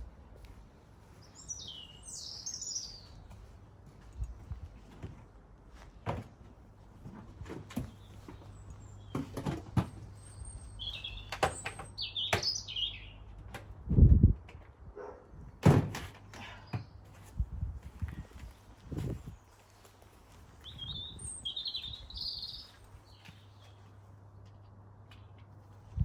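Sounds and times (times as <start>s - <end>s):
small birds chirping: 0.4s - 4.6s, 7.8s - 13.4s, 18.1s - 24.1s
bird feeders clicking and knocking: 11.1s - 12.6s.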